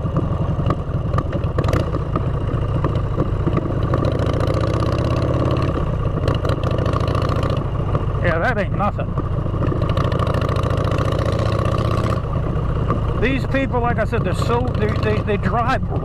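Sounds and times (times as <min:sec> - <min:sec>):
motorcycle engine rumble: 0:00.0 - 0:16.0.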